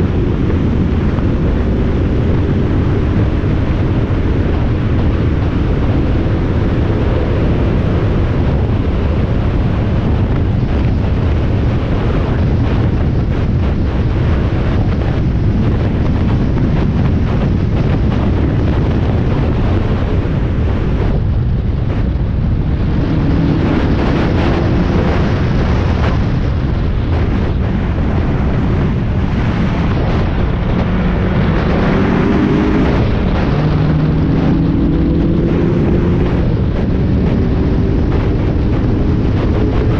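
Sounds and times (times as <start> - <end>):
wind buffeting microphone: 0.0 - 39.9
race car engine revving: 21.9 - 26.0, 27.1 - 39.9.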